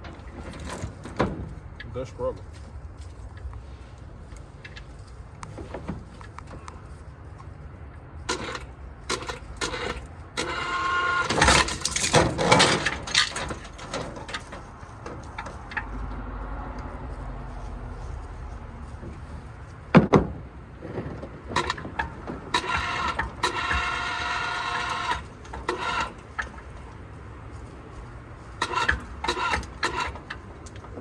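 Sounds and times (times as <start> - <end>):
clanks and rattles of engine work: 0.0 - 31.0
squeaking: 8.3 - 16.1, 20.6 - 31.0.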